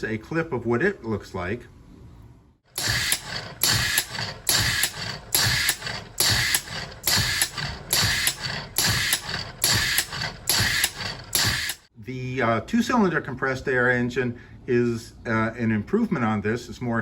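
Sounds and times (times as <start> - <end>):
compressed air engine running: 2.7 - 11.9.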